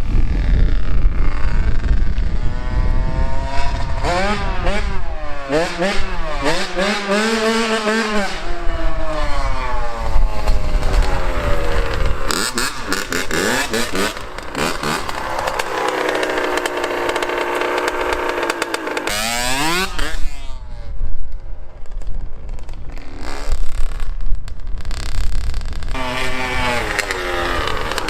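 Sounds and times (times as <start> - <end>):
dirt bike engine revving: 0.1 - 20.9, 25.9 - 28.0.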